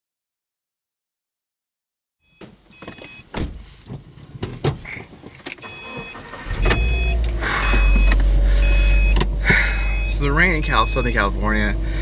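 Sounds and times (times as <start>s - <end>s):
car engine starting and running: 5.1s - 12.0s
short car chime: 5.6s - 11.4s.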